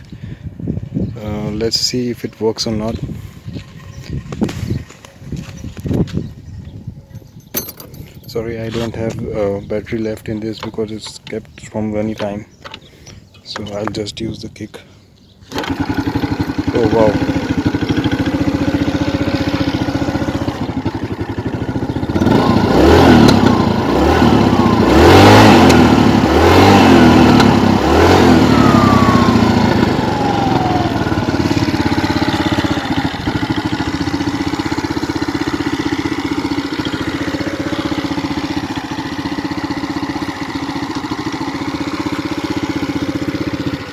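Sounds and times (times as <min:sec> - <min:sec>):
scooter engine idling and revving: 0:00.8 - 0:11.4, 0:15.4 - 0:43.9
kick start: 0:15.4 - 0:43.9.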